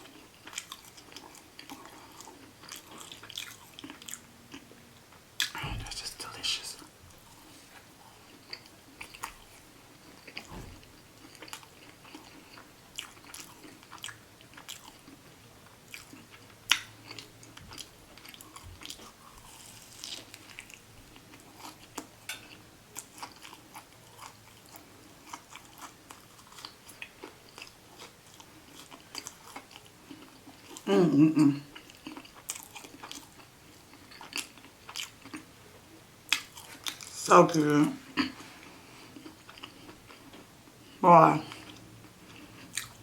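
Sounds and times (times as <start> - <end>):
chewing and biting food: 0.0 - 4.8, 7.2 - 30.9, 31.6 - 35.5, 36.3 - 37.2, 39.1 - 43.0.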